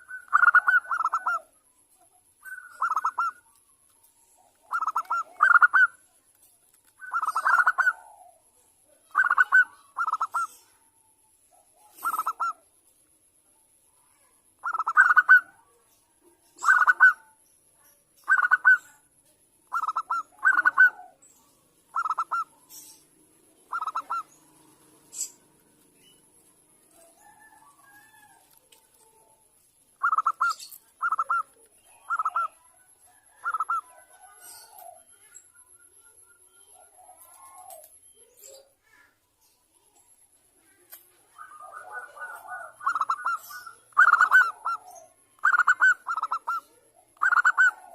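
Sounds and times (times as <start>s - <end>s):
dove trilled coos: 0.0s - 1.6s, 2.4s - 3.6s, 4.2s - 6.0s, 7.0s - 10.8s, 11.6s - 12.7s, 14.6s - 15.7s, 16.6s - 17.4s, 18.2s - 19.0s, 19.6s - 21.3s, 21.9s - 25.5s, 30.0s - 35.3s, 36.6s - 38.6s, 41.3s - 47.9s.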